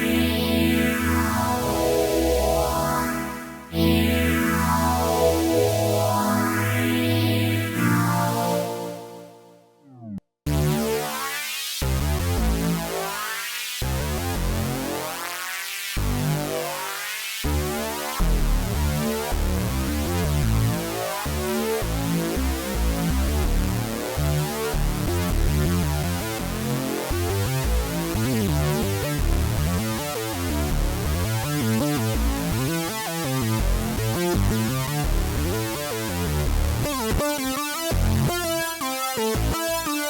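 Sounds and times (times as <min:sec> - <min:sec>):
electronic synth notes: 0:00.0 - 0:11.5, 0:36.4 - 0:40.0
synth bass: 0:00.0 - 0:13.0, 0:17.5 - 0:40.0.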